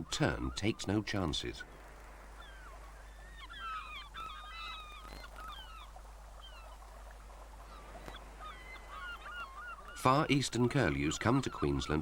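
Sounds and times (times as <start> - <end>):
shorebirds calling: 0.0 - 12.0.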